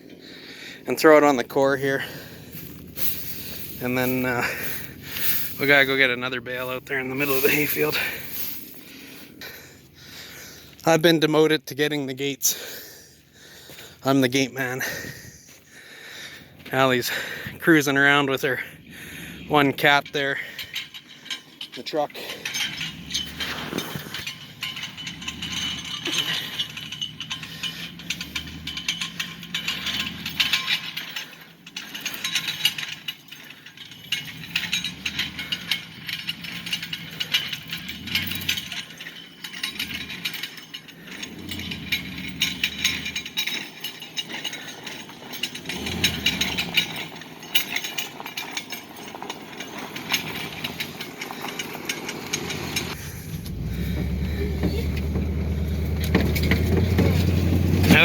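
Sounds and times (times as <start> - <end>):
metal rattling and clattering: 0.0 - 58.0
low engine rumble: 0.1 - 58.0.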